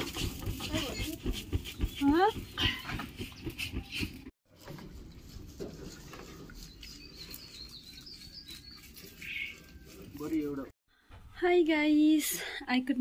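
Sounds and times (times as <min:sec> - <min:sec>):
small birds chirping: 0:06.2 - 0:10.7.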